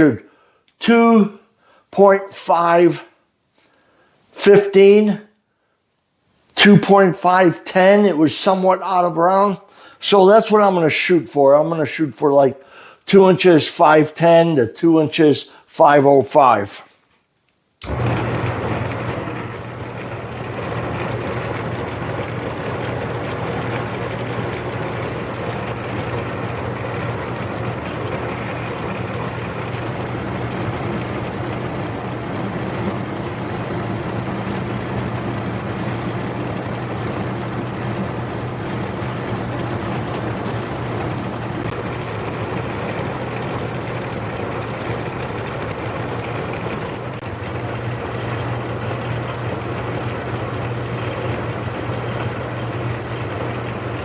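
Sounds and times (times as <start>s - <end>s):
metal lathe running: 17.8s - 54.0s.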